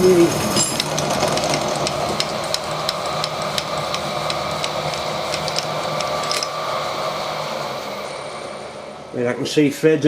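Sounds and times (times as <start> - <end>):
milling machine hum: 0.0 - 9.7
cutter ticking on metal: 1.5 - 6.5.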